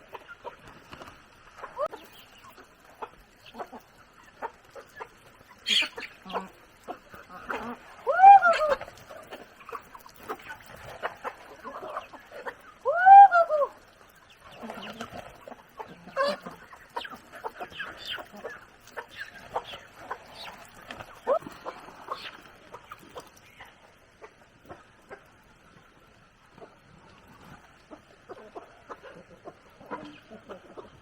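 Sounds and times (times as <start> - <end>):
chickens clucking: 0.0 - 31.0
chicken squawk: 5.6 - 6.6, 7.3 - 8.9.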